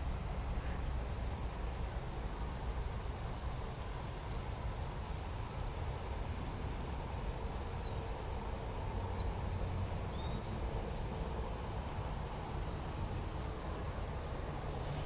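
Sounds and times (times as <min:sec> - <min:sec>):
faint bird chirps: 0:07.5 - 0:08.1, 0:10.1 - 0:10.6.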